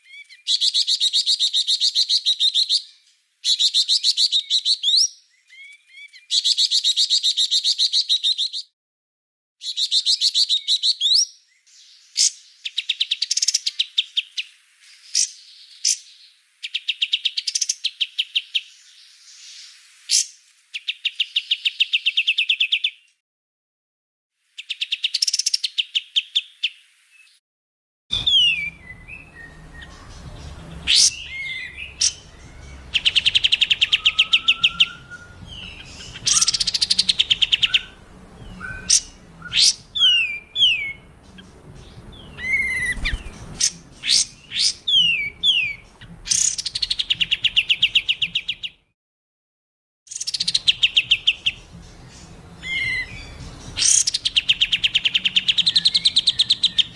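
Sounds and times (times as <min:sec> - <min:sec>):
songbird trills and whistles: 0:28.1 - 0:48.7, 0:50.1 - 0:56.9
faint low hum: 0:28.2 - 0:46.3.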